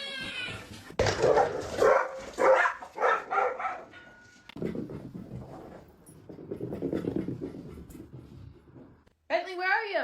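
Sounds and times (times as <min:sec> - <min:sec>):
dog barking: 0:01.1 - 0:03.9.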